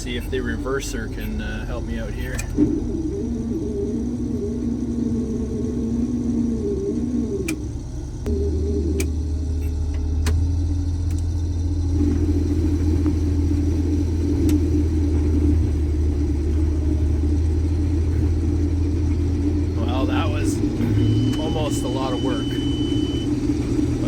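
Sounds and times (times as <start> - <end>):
combine harvester low drone: 0.0 - 24.0
sharp clicks: 2.3 - 3.2, 8.9 - 10.4.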